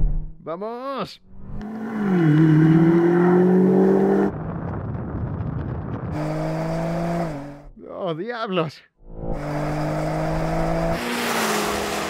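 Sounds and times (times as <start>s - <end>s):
car engine accelerating: 1.3s - 4.3s, 9.0s - 12.0s.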